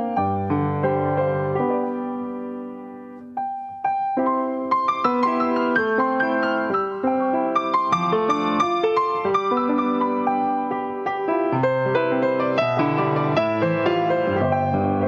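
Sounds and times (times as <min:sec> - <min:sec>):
slow gentle piano piece: 0:00.0 - 0:15.0.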